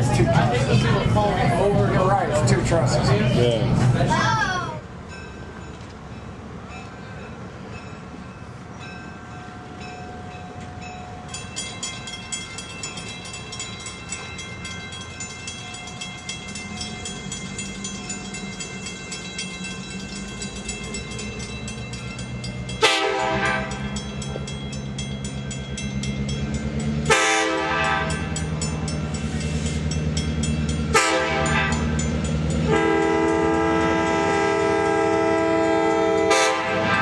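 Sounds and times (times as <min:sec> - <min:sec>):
diesel locomotive engine: 0:00.0 - 0:37.0
crossing bell ringing: 0:00.2 - 0:37.0
locomotive horn blasts: 0:22.8 - 0:24.0, 0:27.0 - 0:28.4, 0:30.9 - 0:32.0, 0:32.6 - 0:37.0.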